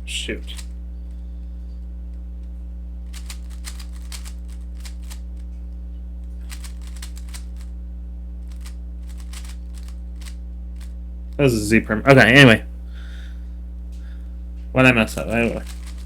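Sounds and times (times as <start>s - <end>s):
steady electrical hum: 0.0s - 16.0s
plastic puzzle cube clicking: 3.1s - 5.2s, 6.5s - 7.7s, 8.5s - 10.9s, 15.6s - 16.0s.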